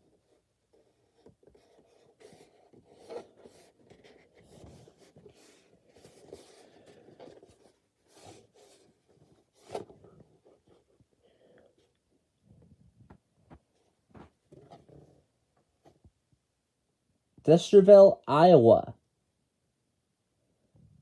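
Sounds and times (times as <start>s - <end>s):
cardboard box rubbing and scraping: 0.8s - 10.9s.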